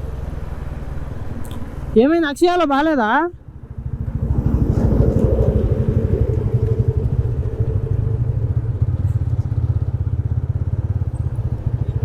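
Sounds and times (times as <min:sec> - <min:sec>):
motorcycle engine running: 0:02.9 - 0:12.0.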